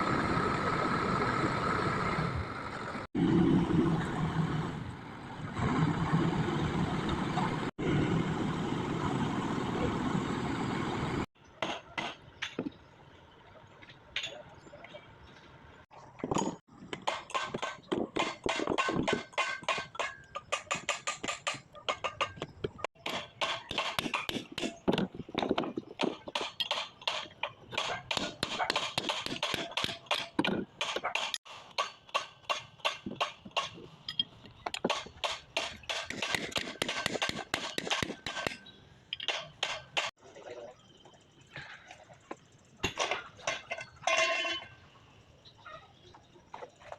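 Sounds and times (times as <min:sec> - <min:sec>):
metal-on-metal clinking and tapping: 0:26.3 - 0:40.1, 0:42.8 - 0:44.8.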